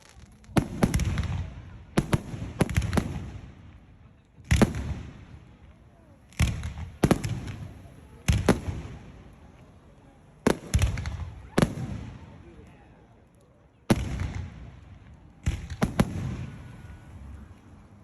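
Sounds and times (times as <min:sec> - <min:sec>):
fireworks bursting with rumbling echo: 0:00.0 - 0:18.0.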